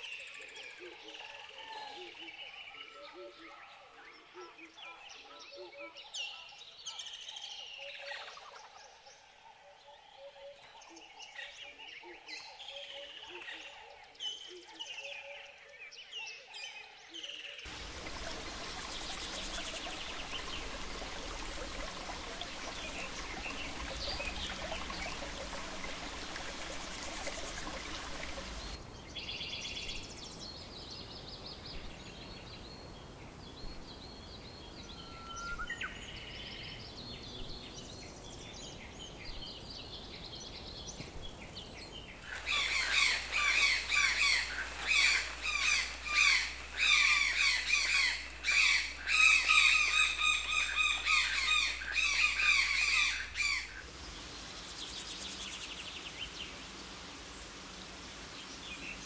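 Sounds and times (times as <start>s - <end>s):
dense chorus of rapid bird calls: 0.0s - 59.0s
running water: 17.7s - 28.8s, 38.3s - 59.0s
scattered bird calls: 17.7s - 30.5s, 38.4s - 57.0s.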